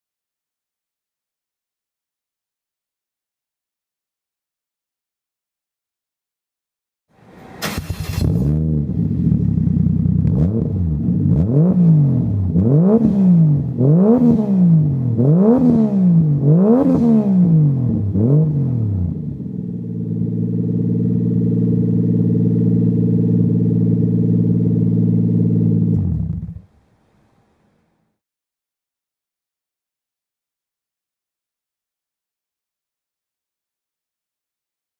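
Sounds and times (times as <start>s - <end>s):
car exhaust revving: 7.2s - 26.6s.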